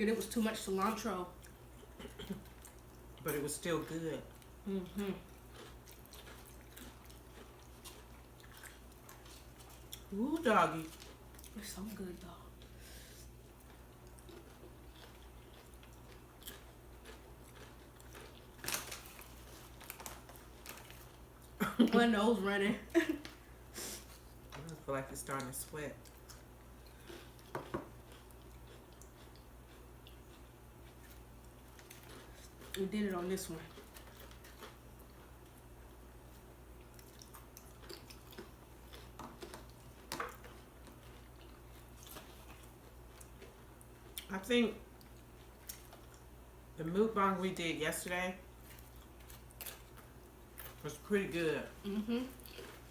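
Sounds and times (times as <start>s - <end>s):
steady low hum: 0.0s - 52.9s
chewing chips: 4.3s - 11.8s, 13.5s - 21.6s, 24.1s - 44.3s, 44.9s - 46.3s, 48.6s - 51.1s, 52.2s - 52.9s.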